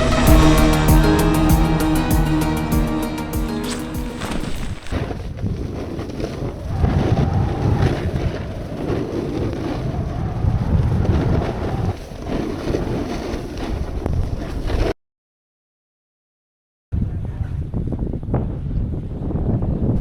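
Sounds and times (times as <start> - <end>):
wind buffeting the microphone: 5.1 - 14.8, 17.0 - 20.0.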